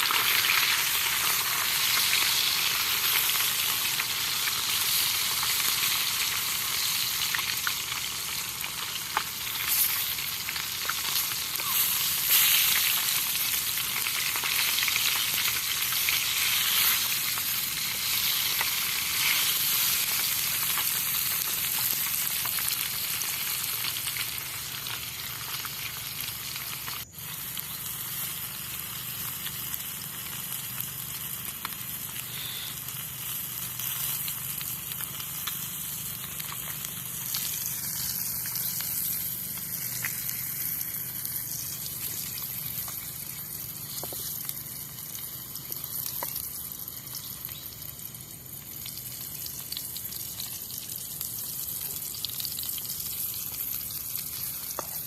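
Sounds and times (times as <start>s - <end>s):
food sizzling in a pan: 0.0s - 55.0s.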